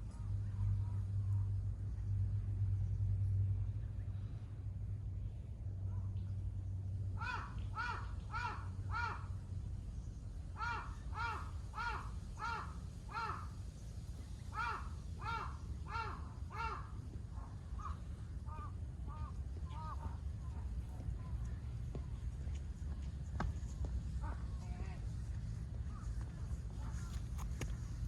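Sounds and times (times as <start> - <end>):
crow cawing: 7.2 - 9.3, 10.6 - 13.5, 14.6 - 17.0.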